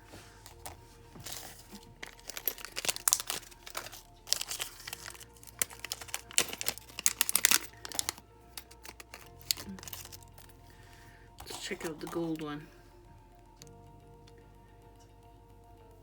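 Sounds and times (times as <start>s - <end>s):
plastic packaging crinkling: 0.0s - 10.6s
faint background music: 0.0s - 16.0s.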